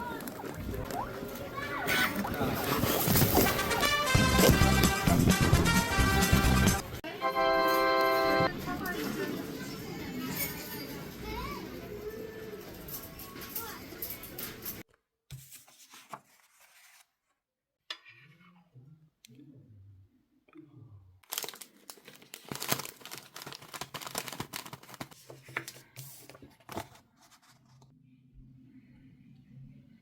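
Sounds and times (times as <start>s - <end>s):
crinkling and tearing: 21.2s - 25.3s.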